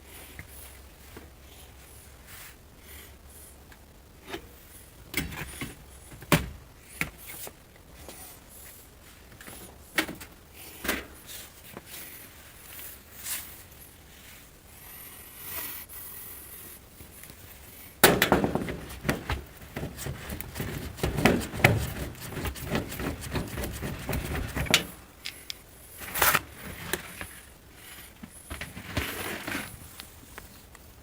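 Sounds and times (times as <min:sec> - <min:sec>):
hard parts knocking and scraping: 0:18.0 - 0:25.4.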